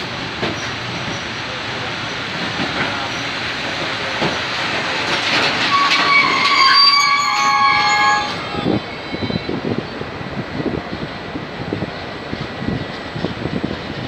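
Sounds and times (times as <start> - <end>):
freight train rumbling past: 0.0 - 14.0
wheels squealing: 5.2 - 9.6.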